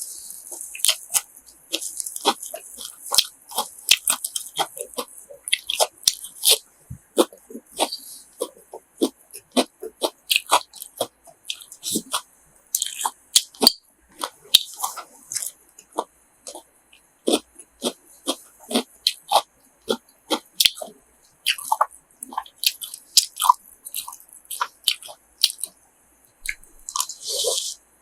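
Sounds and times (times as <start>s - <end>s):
person chewing: 0.0s - 25.8s, 26.4s - 27.8s.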